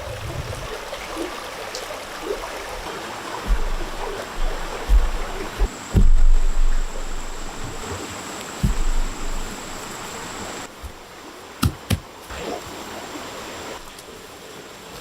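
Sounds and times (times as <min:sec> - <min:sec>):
running water: 0:00.0 - 0:15.0
low thump: 0:03.4 - 0:07.8, 0:08.6 - 0:11.0.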